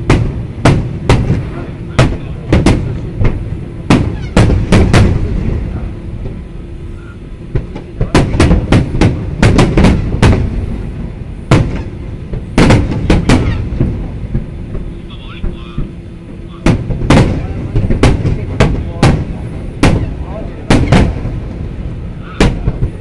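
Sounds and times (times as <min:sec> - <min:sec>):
firework booms: 0:00.0 - 0:06.5, 0:07.4 - 0:23.0
low rumble: 0:00.0 - 0:23.0.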